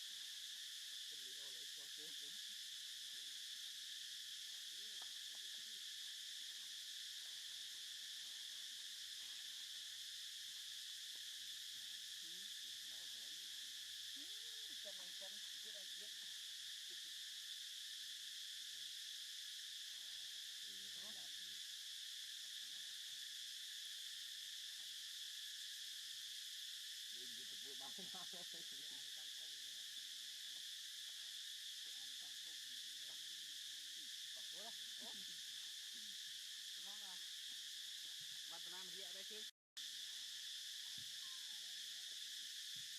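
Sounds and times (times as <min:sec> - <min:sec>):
insect chorus drone: 0:00.0 - 0:42.9.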